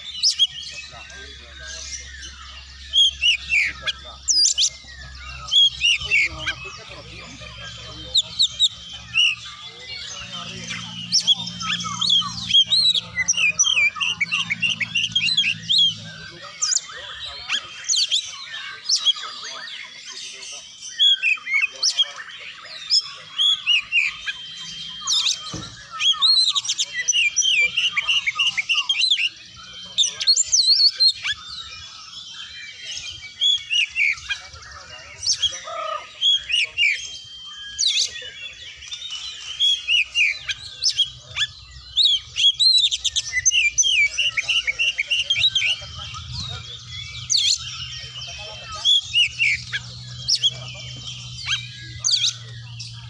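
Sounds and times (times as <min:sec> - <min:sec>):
bird singing: 0:00.0 - 0:53.0.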